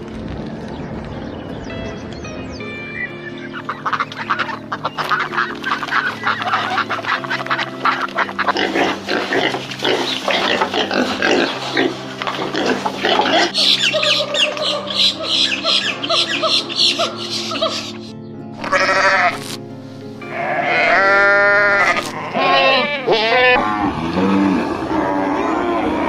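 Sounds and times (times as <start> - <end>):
waterfowl calling: 3.3 - 19.4.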